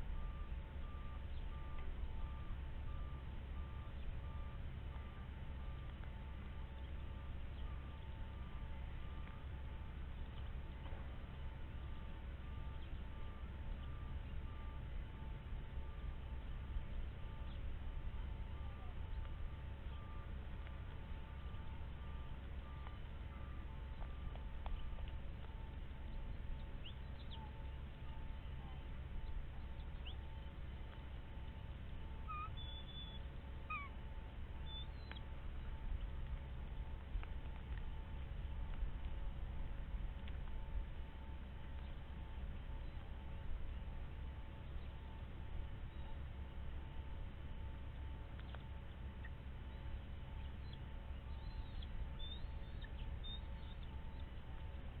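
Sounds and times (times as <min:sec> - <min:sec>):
faint steady hum: 0:00.0 - 0:55.0
steady low rumble: 0:00.0 - 0:55.0
high-pitched bird calls: 0:32.2 - 0:34.0, 0:34.6 - 0:35.3, 0:50.4 - 0:54.3
squeaky bird calls: 0:32.3 - 0:34.0, 0:34.6 - 0:35.2.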